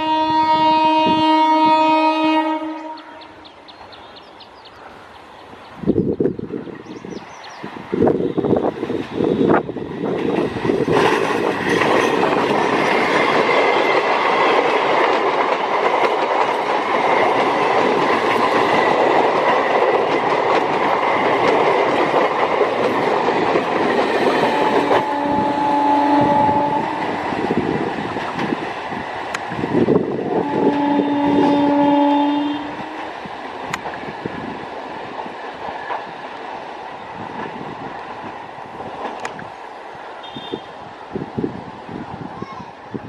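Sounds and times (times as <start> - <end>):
locomotive horn: 0.0 - 3.5, 24.5 - 27.2, 30.3 - 33.2, 40.2 - 40.8
train passing at speed: 0.0 - 43.0.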